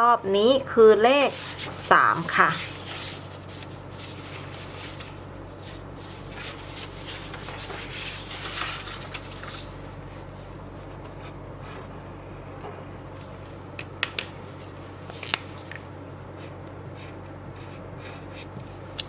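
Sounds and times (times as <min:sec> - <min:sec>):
steady electrical hum: 0:00.0 - 0:19.0
soft rubbing noises: 0:01.2 - 0:11.9.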